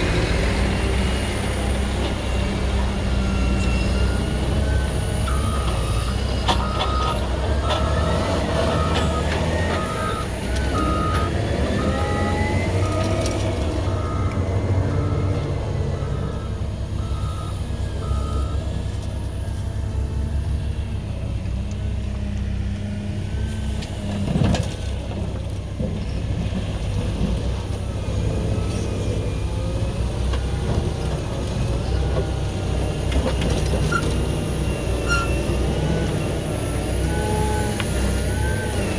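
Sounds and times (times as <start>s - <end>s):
diesel engine under load: 0.0s - 38.9s
reversing alarm beeping: 2.6s - 18.6s, 33.3s - 38.9s.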